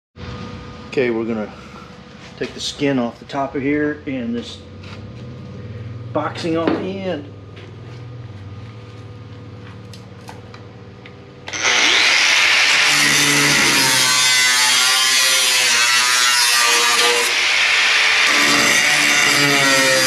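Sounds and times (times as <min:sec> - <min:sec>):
power tool cutting sheet metal: 0:11.5 - 0:20.0.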